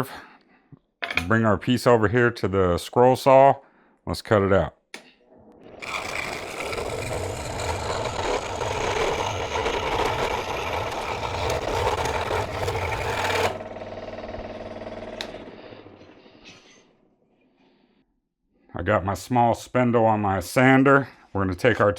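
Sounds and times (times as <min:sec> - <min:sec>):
scroll saw cutting wood: 0:05.7 - 0:13.8.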